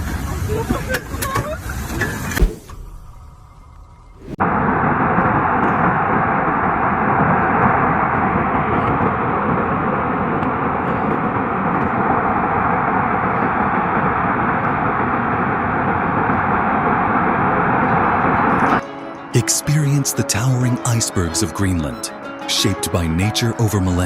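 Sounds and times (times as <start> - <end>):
loud rushing noise: 2.4 - 3.5, 4.2 - 4.4.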